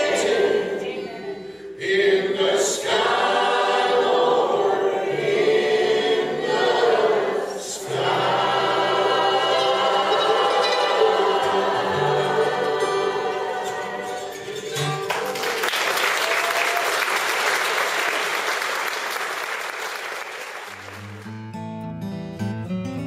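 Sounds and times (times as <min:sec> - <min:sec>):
song with voices and instruments: 0:00.0 - 0:15.6
acoustic guitar strumming: 0:07.8 - 0:15.3, 0:20.9 - 0:23.0
audience applause: 0:14.8 - 0:21.4.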